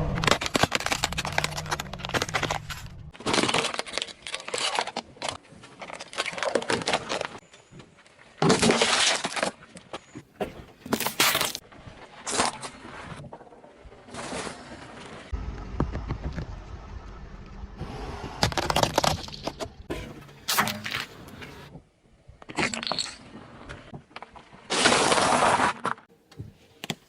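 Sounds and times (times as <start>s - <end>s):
brittle objects crushed under tyre: 0.0s - 7.4s.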